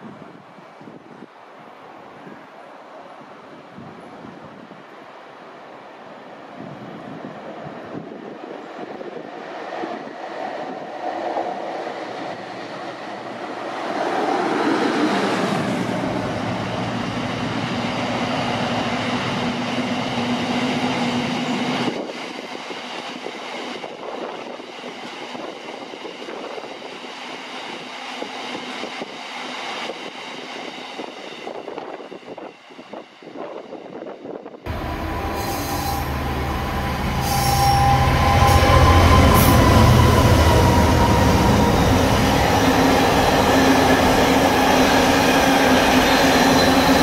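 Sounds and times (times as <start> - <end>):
train rolling past: 5.1 - 47.0
high whining tones: 34.7 - 47.0.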